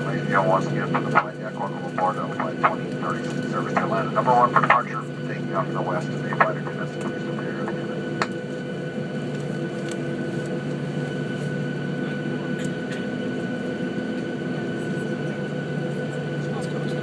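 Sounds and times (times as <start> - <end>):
jet engines idling: 0.0 - 17.0.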